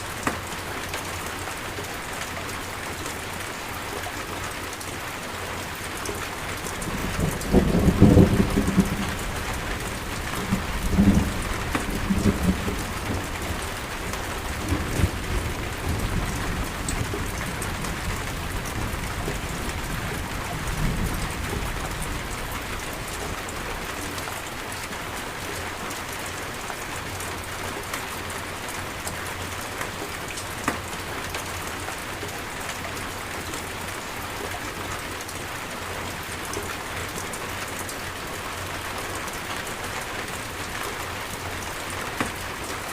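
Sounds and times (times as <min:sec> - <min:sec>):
rain pouring: 0:00.0 - 0:42.9
low rolls of thunder: 0:06.8 - 0:23.8.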